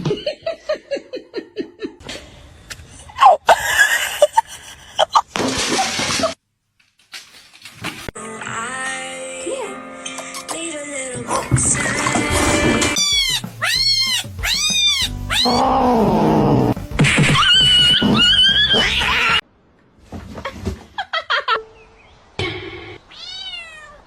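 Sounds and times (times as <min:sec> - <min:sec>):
cat meowing: 0:13.0 - 0:15.9, 0:23.1 - 0:24.0.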